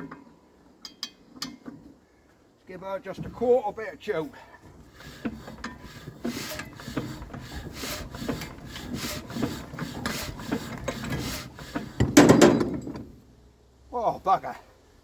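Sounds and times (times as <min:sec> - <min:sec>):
engine hand-cranked rasping: 0:04.3 - 0:13.2.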